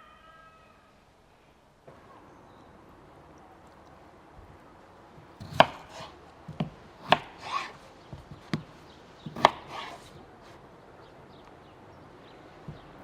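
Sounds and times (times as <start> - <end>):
knife chopping on wooden board: 5.2 - 10.2, 12.7 - 13.0.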